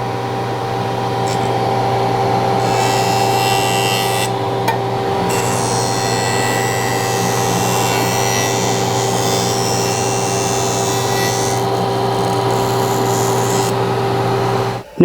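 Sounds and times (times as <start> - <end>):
jointer hissing cut on wood: 0.0 - 15.0
jointer motor hum: 0.0 - 15.0.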